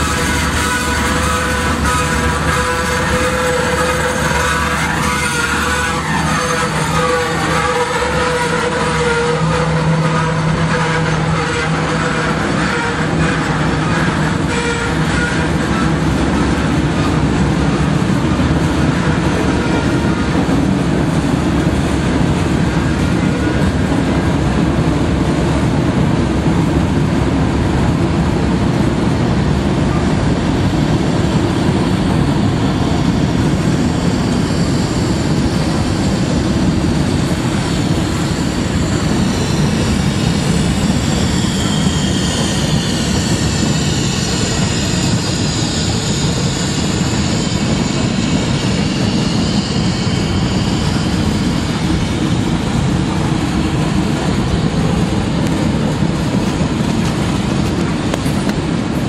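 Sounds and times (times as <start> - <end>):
steel wheels rumbling on rail: 0.0 - 59.0
faint high squeals: 38.1 - 51.9.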